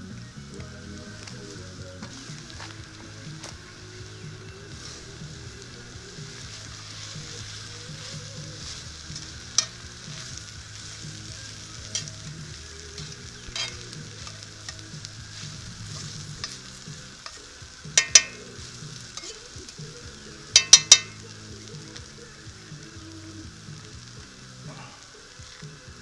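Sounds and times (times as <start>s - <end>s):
food sizzling in a skillet: 0.0s - 26.0s
utensil clinking against pan: 2.0s - 22.2s.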